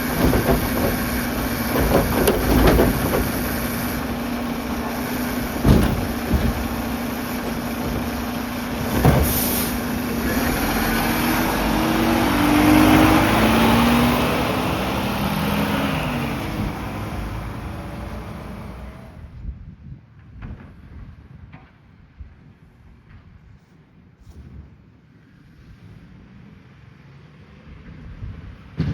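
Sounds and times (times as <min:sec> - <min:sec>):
garbage truck diesel engine running: 0:00.0 - 0:19.3.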